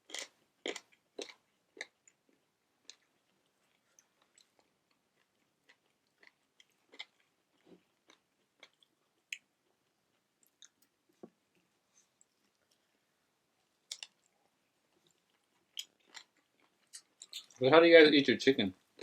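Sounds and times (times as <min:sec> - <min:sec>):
close chewing: 0:00.1 - 0:10.8.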